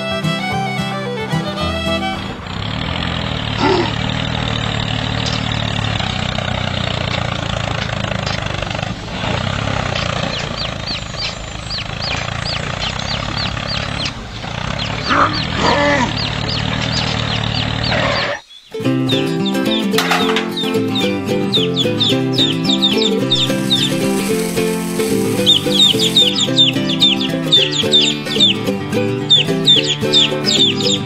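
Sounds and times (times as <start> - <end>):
motor drone: 1.6 - 18.1
quick high chirps: 14.8 - 31.0.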